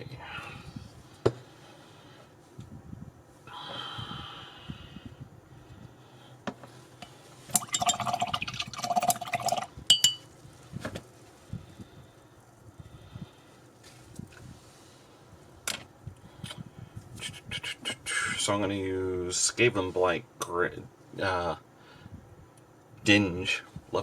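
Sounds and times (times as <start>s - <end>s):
brush clinking on glass rim: 9.5s - 10.3s.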